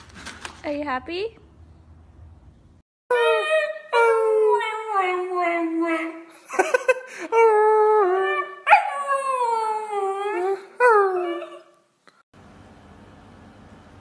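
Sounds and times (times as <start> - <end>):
puppy howling: 3.1 - 6.2, 7.4 - 11.7.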